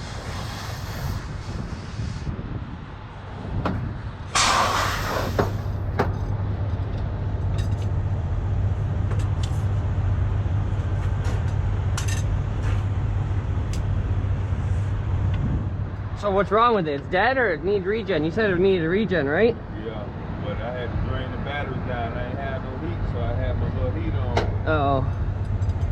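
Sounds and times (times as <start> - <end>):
compressed air hissing: 0.0 - 2.5, 4.3 - 5.8.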